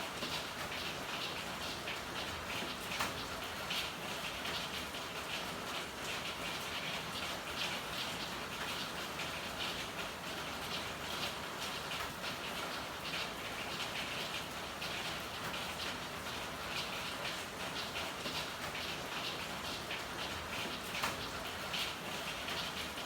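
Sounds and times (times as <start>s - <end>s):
rain falling: 0.0s - 23.0s.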